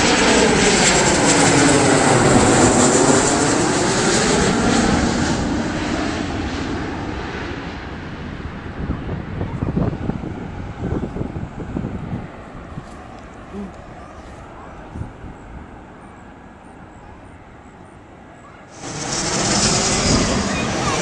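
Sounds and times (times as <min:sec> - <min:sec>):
airplane flying overhead: 0:00.0 - 0:21.0.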